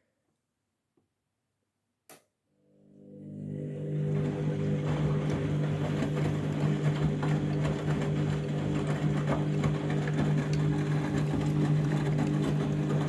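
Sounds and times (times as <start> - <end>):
washing machine motor hum: 2.7 - 13.0.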